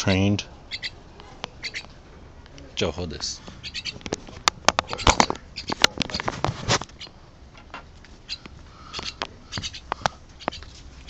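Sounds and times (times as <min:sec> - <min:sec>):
mynah bird harsh calls and clicks: 0:00.6 - 0:02.0, 0:03.5 - 0:07.2, 0:08.2 - 0:11.0.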